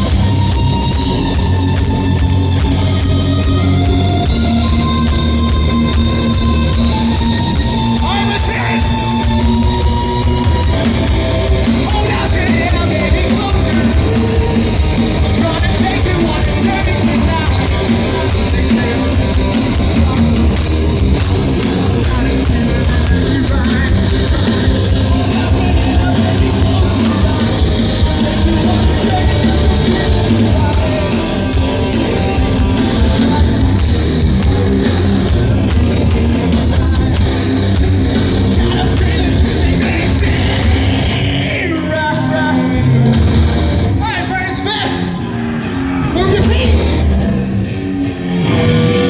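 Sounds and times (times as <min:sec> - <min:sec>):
heavy rock band playing live: 0:00.0 - 0:49.0
sung and yelled vocals: 0:00.0 - 0:49.0.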